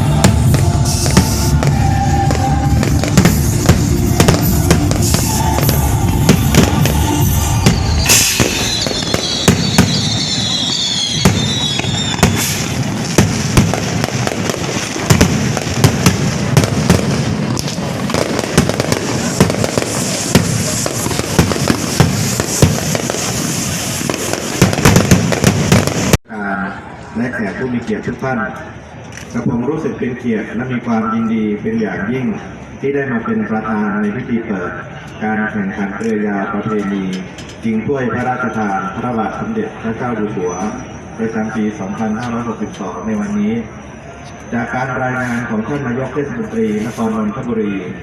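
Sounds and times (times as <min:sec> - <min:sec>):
music playing: 0:00.0 - 0:11.8
fireworks bangs and crackles: 0:00.0 - 0:26.2.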